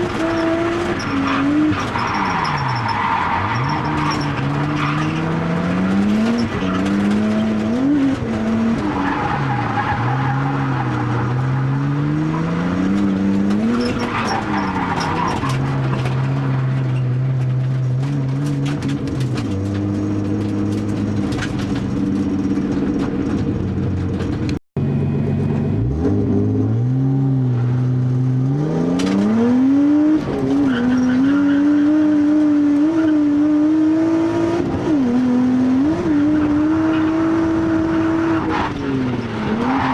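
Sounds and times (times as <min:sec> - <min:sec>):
tyre squeal: 0:00.0 - 0:08.1, 0:13.6 - 0:17.1, 0:30.3 - 0:33.3.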